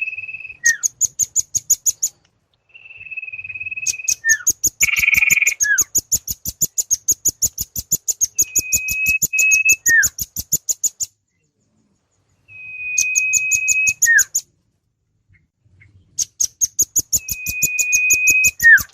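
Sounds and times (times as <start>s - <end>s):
bird whistles with falling note: 8.2s - 10.2s, 17.1s - 18.9s.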